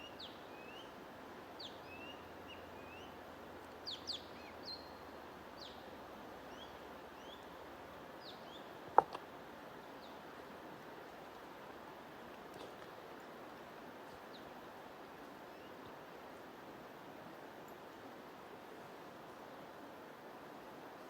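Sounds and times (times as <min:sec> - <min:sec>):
low steady hiss: 0:00.0 - 0:21.0.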